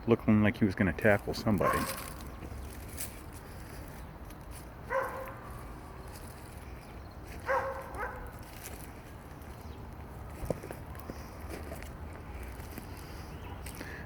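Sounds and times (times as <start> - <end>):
dog barking: 1.6 - 2.2, 4.9 - 5.6, 7.4 - 8.3.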